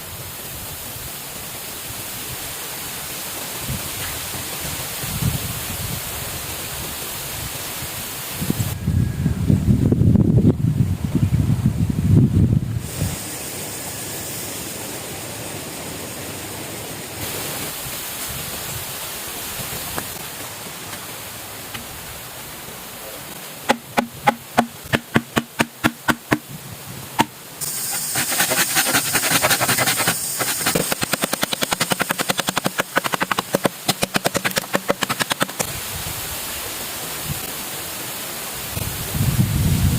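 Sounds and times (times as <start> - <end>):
steady hiss: 0.0 - 8.8, 12.6 - 39.9
hand tool cutting bamboo: 23.7 - 26.4, 27.2 - 35.7.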